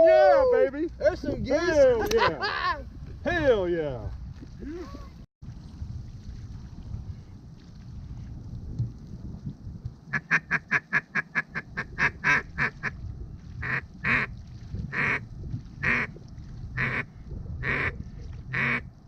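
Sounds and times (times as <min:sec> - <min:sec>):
duck quacking: 0:16.8 - 0:17.9, 0:18.5 - 0:18.8.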